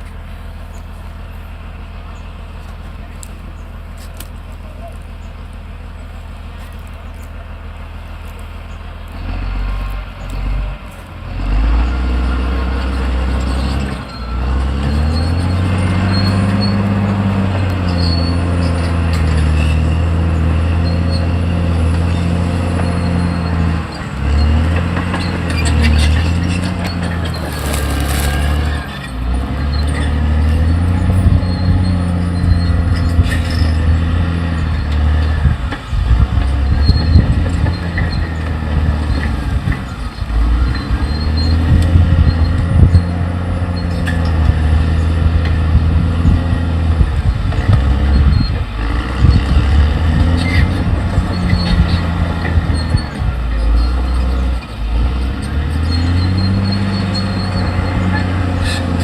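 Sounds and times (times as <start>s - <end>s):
bulldozer diesel engine working: 0.0s - 59.0s
faint machine squeals: 11.7s - 35.5s, 36.6s - 45.2s, 47.9s - 49.6s, 50.3s - 59.0s.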